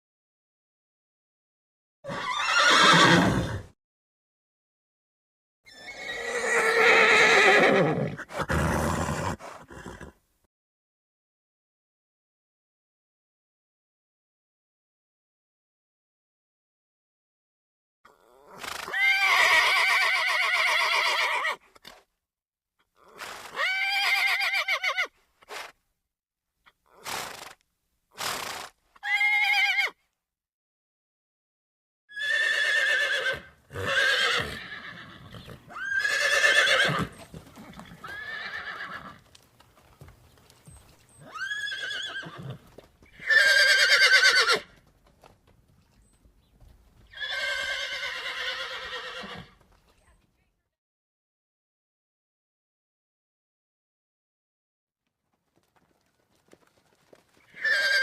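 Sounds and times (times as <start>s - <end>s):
horse whinnying: 2.0s - 3.8s, 5.7s - 10.2s, 18.1s - 21.6s, 23.0s - 25.1s, 28.2s - 30.0s, 32.1s - 39.2s, 41.1s - 44.8s, 47.1s - 49.6s, 57.4s - 58.0s.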